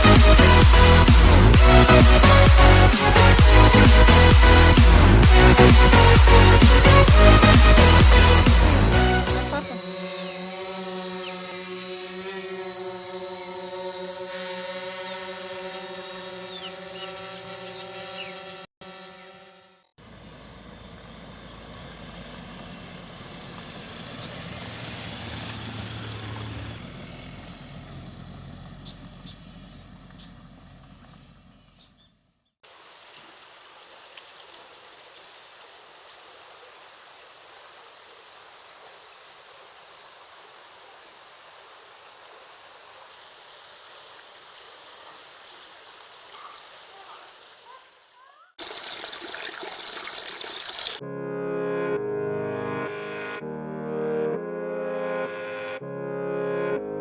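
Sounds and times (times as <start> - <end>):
waterfall rushing: 0.0 - 12.2, 48.6 - 51.0.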